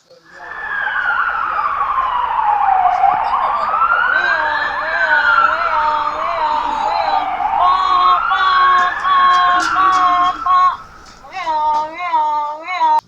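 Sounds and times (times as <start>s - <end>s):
police siren wailing: 0.0s - 12.0s
warbling siren tone: 0.0s - 12.0s.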